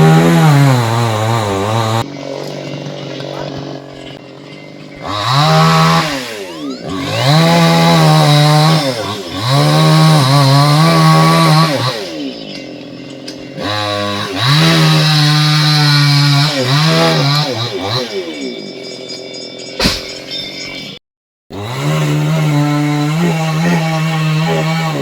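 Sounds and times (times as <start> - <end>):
chainsaw revving: 0.0 - 19.0, 21.5 - 25.0.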